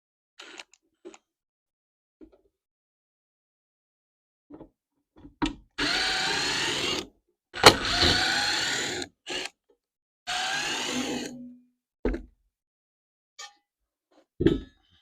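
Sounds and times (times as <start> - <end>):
power drill driving screws: 0.4 - 0.7, 5.8 - 9.5, 10.3 - 11.3.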